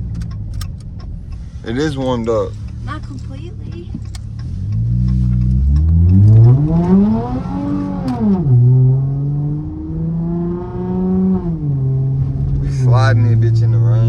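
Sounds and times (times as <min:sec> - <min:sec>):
car exhaust revving: 0:01.2 - 0:14.0.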